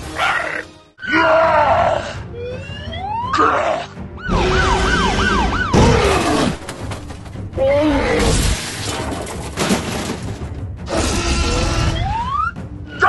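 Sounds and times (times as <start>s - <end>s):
music: 0.0s - 13.0s
cartoon siren wailing: 1.0s - 6.1s, 11.3s - 12.6s.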